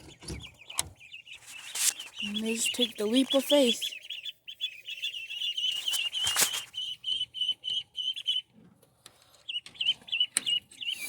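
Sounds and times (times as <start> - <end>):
ducklings peeping: 0.0 - 11.0
wing-flapping rustle: 1.4 - 2.8, 5.7 - 6.8.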